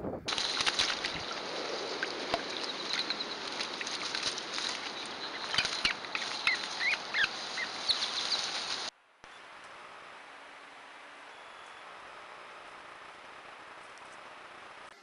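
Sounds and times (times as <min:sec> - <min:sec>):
clicks and rustles: 0:00.3 - 0:07.4.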